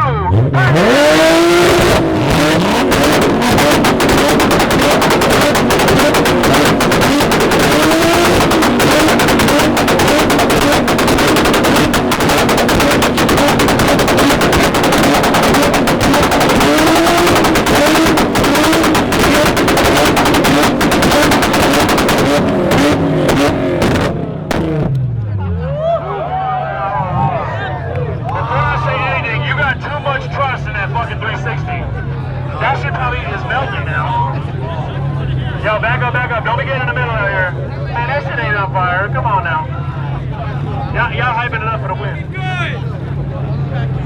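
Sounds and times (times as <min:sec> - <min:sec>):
car engines revving: 0:00.0 - 0:44.0
exhaust pops crackling: 0:00.5 - 0:25.3.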